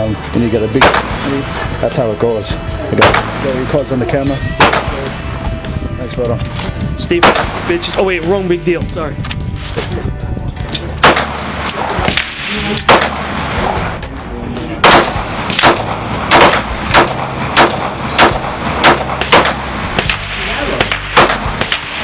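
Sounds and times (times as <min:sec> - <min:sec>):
pistol shots: 0:07.2 - 0:07.6, 0:11.0 - 0:13.5, 0:14.8 - 0:22.0.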